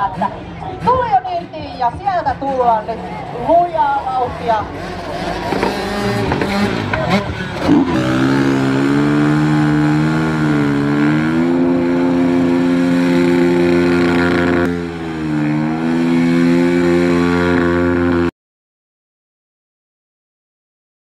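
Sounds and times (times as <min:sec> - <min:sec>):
motorcycle engine revving high: 0:03.2 - 0:18.3.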